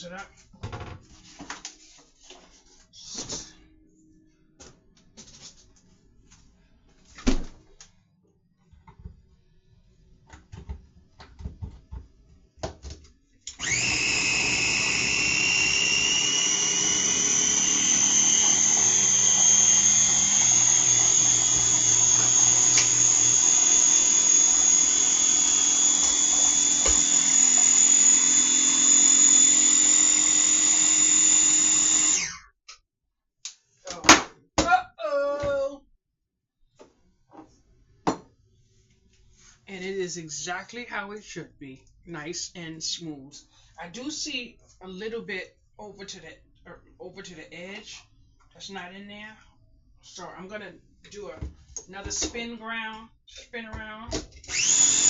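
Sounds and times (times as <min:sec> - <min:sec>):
blender motor whining: 0:13.5 - 0:32.5, 0:54.5 - 0:55.0.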